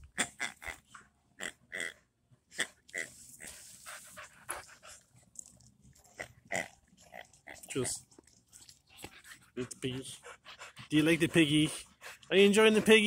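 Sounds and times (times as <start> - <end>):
dog panting: 3.4 - 5.3, 7.0 - 13.0.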